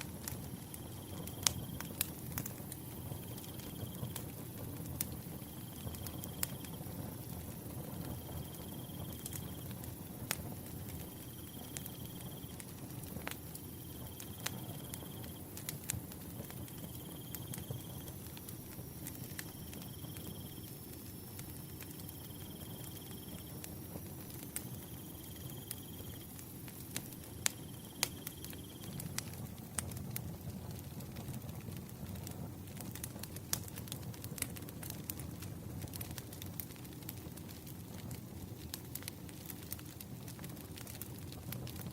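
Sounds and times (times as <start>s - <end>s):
firewood crackling and popping: 0.0s - 41.9s
cricket chirping: 0.5s - 4.2s, 8.0s - 9.9s, 10.9s - 12.6s, 13.7s - 15.6s, 16.6s - 29.2s.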